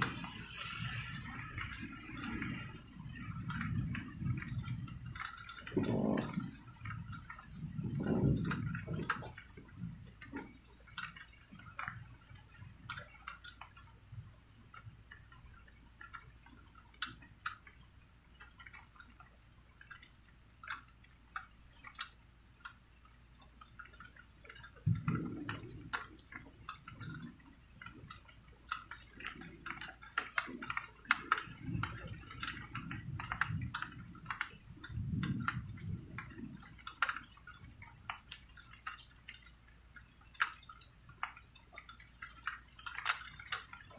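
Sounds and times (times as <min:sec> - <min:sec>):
distant thunder rumbles: 0:00.0 - 0:10.8, 0:30.4 - 0:36.9
rain dripping and pattering: 0:00.0 - 0:43.9.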